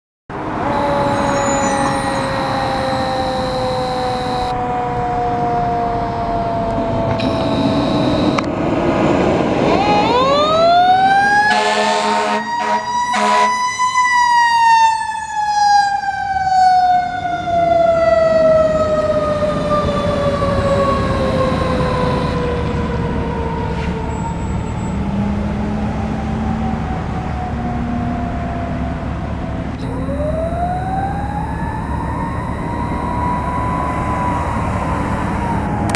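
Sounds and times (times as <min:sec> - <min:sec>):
fire engine siren: 0:00.3 - 0:35.9
short horn blasts: 0:00.6 - 0:04.5, 0:07.2 - 0:08.4, 0:11.5 - 0:13.6.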